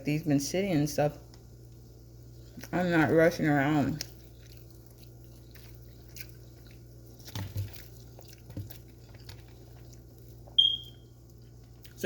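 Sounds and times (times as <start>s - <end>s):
soft chewing: 1.3s - 12.0s
high ringing tone: 10.6s - 11.0s.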